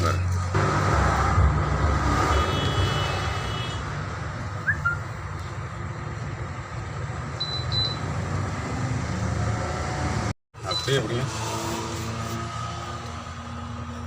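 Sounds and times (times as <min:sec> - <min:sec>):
short high beeps: 0:07.4 - 0:08.0.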